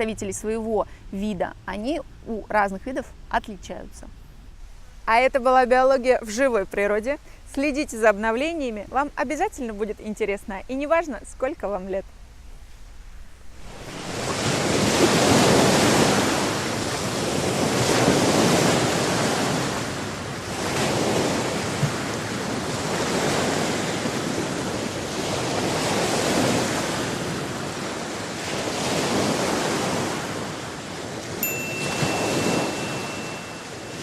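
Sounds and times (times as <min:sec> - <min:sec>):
sea waves washing onto shore: 0:13.6 - 0:34.0.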